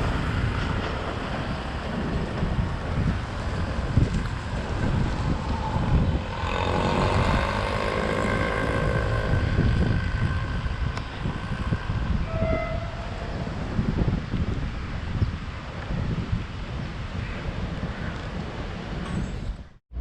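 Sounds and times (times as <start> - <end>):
wind buffeting microphone: 0.0 - 20.0
train horn chord: 12.2 - 13.2.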